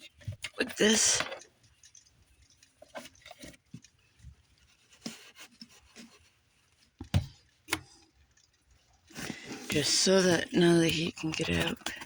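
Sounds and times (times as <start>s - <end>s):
soft rustling: 0.0s - 12.0s.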